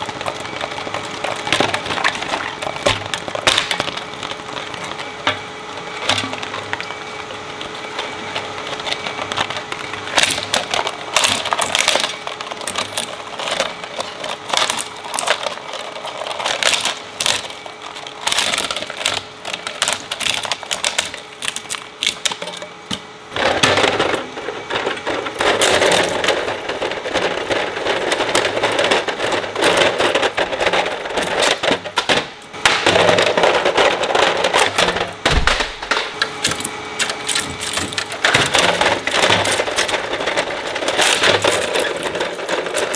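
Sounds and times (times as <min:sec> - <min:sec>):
plastic cracking and snapping: 0:00.0 - 0:05.4, 0:07.6 - 0:23.0, 0:25.4 - 0:42.9
shredder motor hum: 0:00.0 - 0:42.9.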